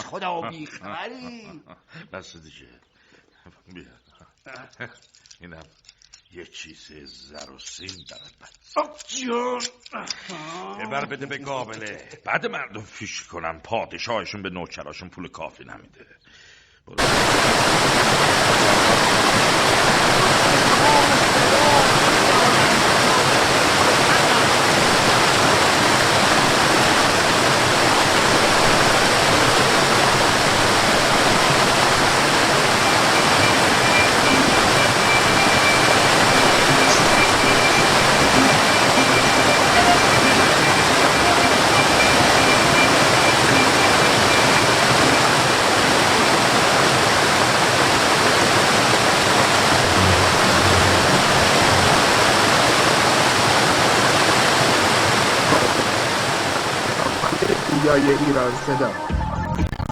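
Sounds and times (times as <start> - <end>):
loud rushing noise: 17.0 - 45.7, 49.3 - 53.3.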